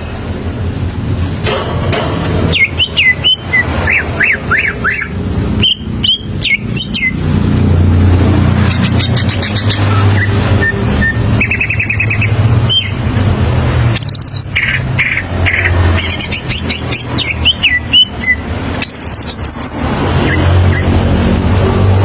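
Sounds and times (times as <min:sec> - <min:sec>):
bird singing trills and whistles: 0:02.5 - 0:07.3, 0:08.6 - 0:13.0, 0:13.9 - 0:21.0.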